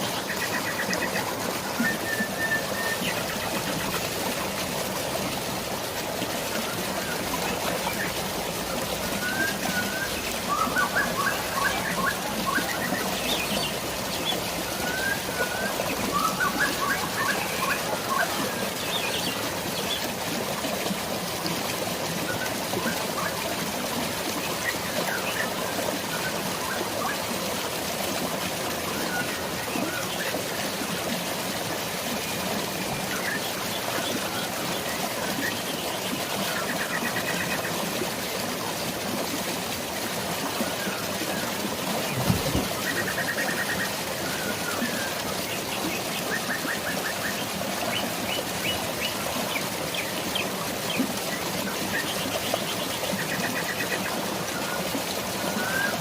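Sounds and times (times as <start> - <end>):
flowing water: 0.0 - 56.0
birds chirping: 42.0 - 51.0.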